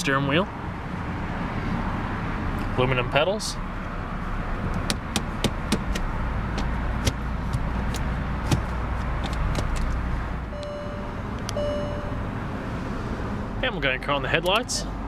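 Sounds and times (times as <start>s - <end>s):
short electronic beeps: 10.5s - 12.3s.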